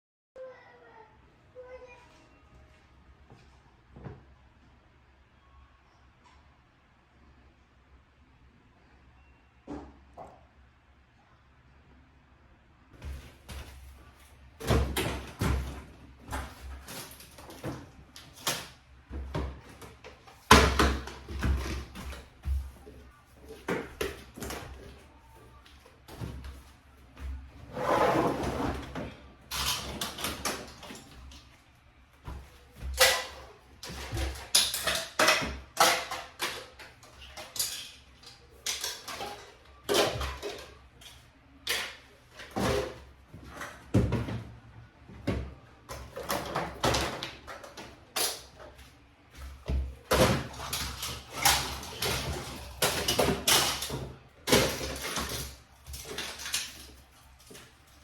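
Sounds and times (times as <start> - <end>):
things being moved: 13.0 - 58.0.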